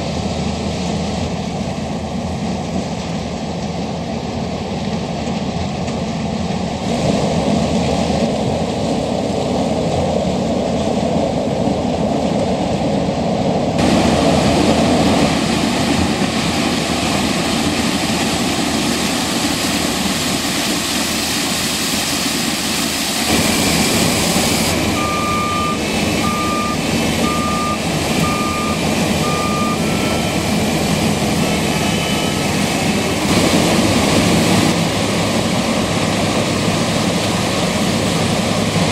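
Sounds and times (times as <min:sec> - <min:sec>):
combine harvester running: 0:00.0 - 0:38.9
reversing alarm beeping: 0:23.3 - 0:33.4.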